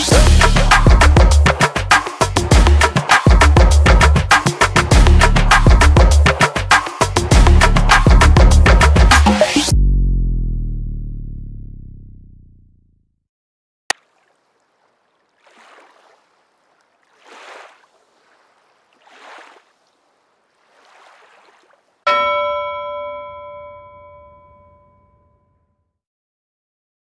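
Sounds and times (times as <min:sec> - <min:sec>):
bell-like chime: 0:22.1 - 0:25.7.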